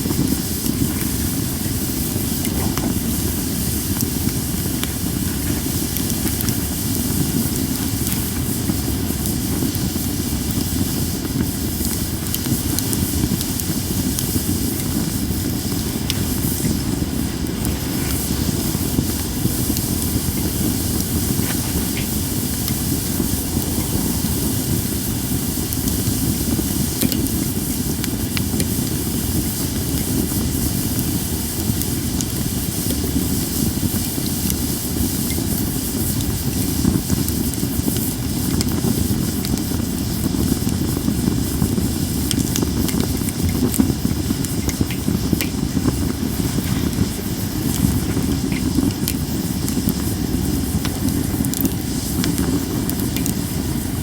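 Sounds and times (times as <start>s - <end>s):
campfire hissing and rushing: 0.0s - 54.0s
small fire crackles: 0.0s - 54.0s.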